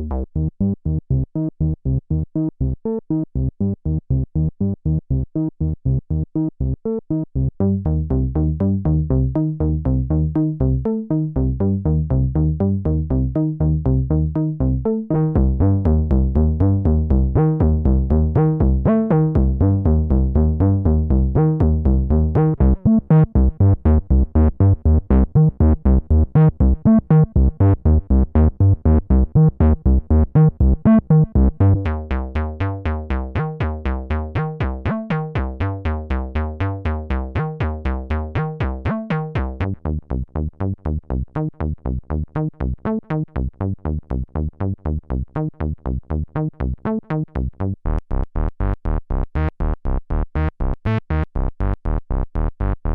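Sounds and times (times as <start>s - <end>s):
synthesizer bass line: 0.0s - 2.2s, 7.4s - 52.9s.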